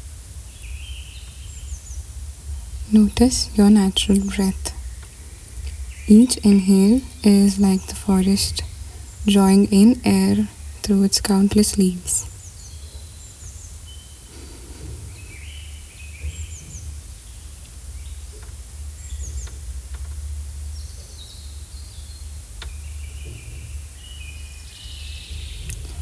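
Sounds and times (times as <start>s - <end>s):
songbirds chirping: 0.4s - 26.0s
steady low rumble: 1.3s - 12.3s.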